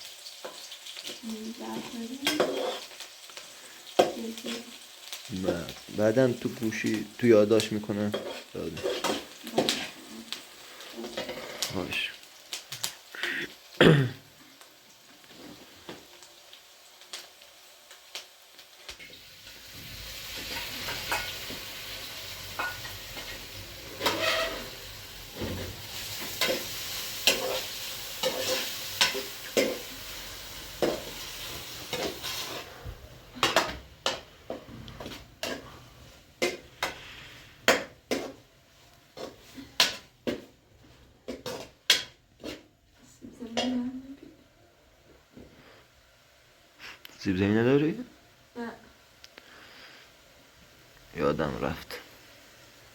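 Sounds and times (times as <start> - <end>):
food sizzling in a pan: 0.0 - 52.9
utensil scraping pan: 2.2 - 3.0, 8.1 - 10.2, 22.6 - 29.9, 30.8 - 32.8, 33.4 - 35.8.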